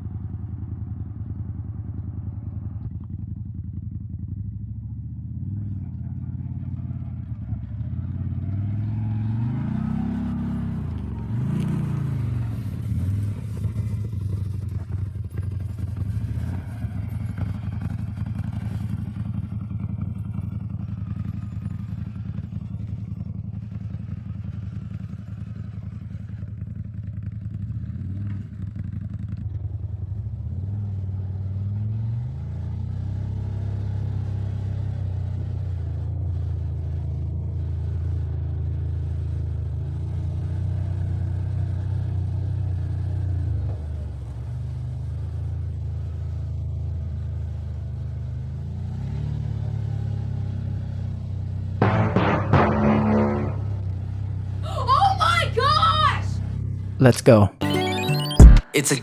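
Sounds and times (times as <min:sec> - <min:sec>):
off-road vehicle engine revving: 0:05.3 - 0:14.6.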